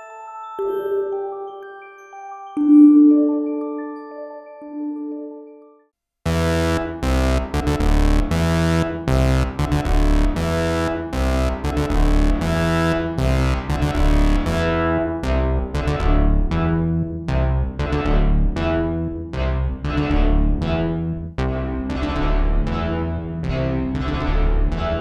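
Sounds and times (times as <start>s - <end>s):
synthesizer bass sequence with reverb: 6.3s - 25.0s.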